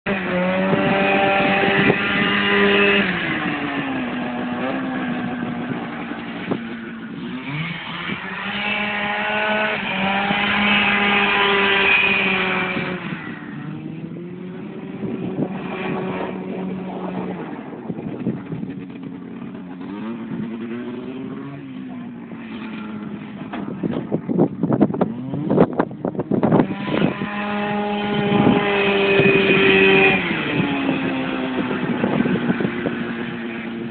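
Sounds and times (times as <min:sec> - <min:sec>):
two-stroke kart engine revving: 0:00.1 - 0:33.9
engine cracks and pops: 0:22.6 - 0:24.3.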